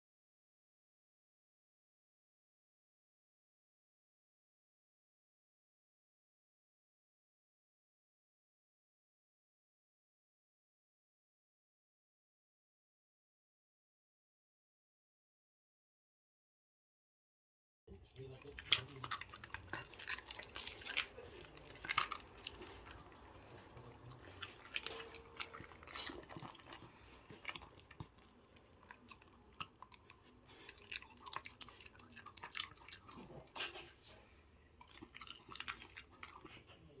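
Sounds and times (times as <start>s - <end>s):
dog chewing with crunches: 18.2s - 36.7s
teeth clicking: 18.3s - 33.8s, 34.8s - 36.5s.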